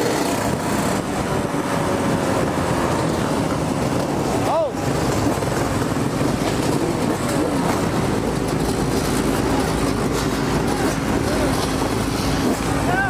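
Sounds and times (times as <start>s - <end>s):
dirt bike and quad engines: 0.0s - 13.0s
road and wind noise: 0.0s - 13.0s.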